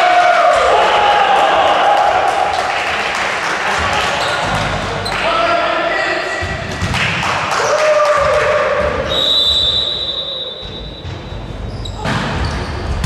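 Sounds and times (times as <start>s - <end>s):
indoor hall noise: 0.0s - 13.0s
referee whistle blast: 9.1s - 11.2s.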